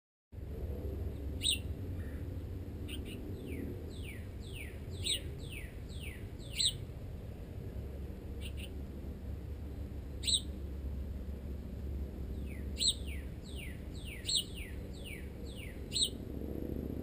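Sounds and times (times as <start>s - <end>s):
steady low rumble: 0.4s - 17.0s
songbird whistled notes: 2.9s - 6.8s, 10.2s - 10.5s, 12.4s - 16.2s.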